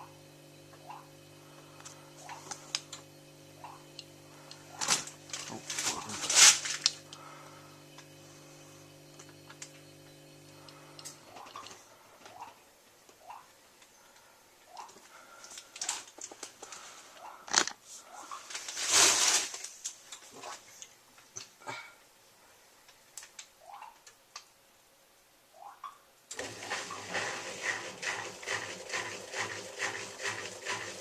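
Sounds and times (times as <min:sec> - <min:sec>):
washing machine humming: 0:00.0 - 0:17.4, 0:26.3 - 0:31.0.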